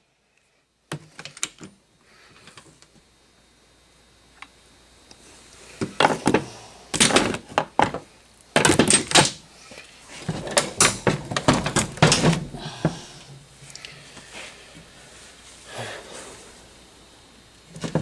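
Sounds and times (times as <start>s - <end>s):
metal engine parts clattering: 8.6s - 9.4s, 10.2s - 13.0s.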